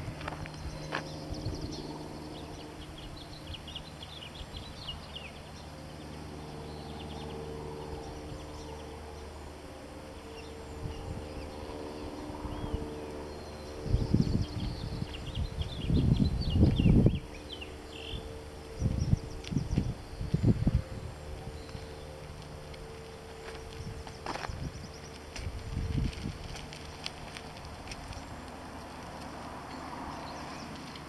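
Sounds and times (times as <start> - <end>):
steady low hum: 0.0 - 31.0
small birds chirping: 0.2 - 9.5, 10.1 - 31.0
low rumbles on microphone: 13.8 - 17.4, 23.6 - 28.4.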